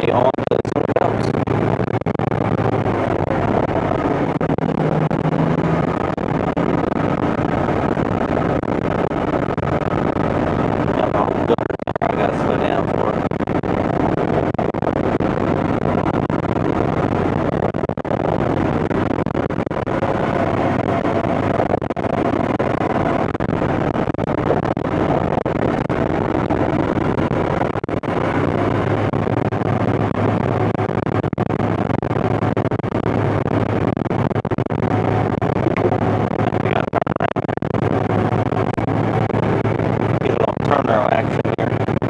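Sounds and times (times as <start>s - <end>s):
tractor diesel engine under load: 2.7s - 8.9s.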